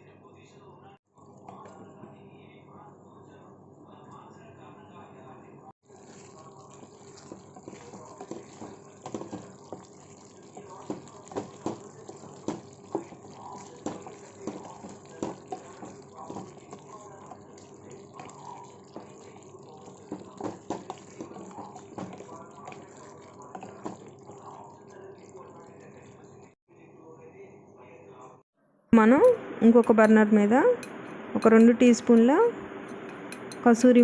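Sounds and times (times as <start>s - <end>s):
low hiss of simmering: 5.8s - 26.6s
curry bubbles popping: 5.9s - 26.6s.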